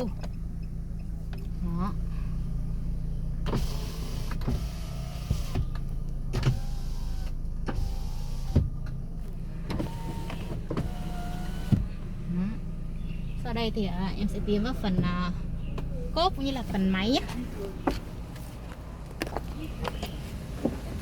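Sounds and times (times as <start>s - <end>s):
low hum: 0.1s - 19.2s
power window motor whine: 3.4s - 9.0s, 9.6s - 12.0s.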